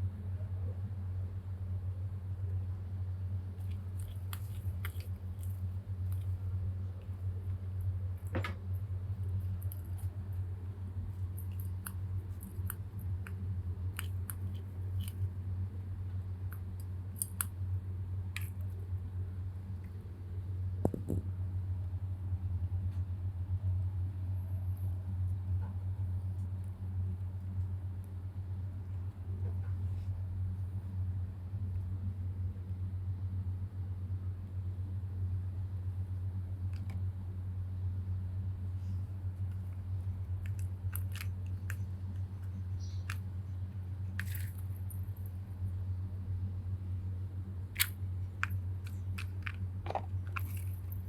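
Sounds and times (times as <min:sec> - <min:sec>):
steady low hum: 0:00.0 - 0:51.0
light clicks and rustles: 0:38.8 - 0:45.4, 0:47.7 - 0:51.0.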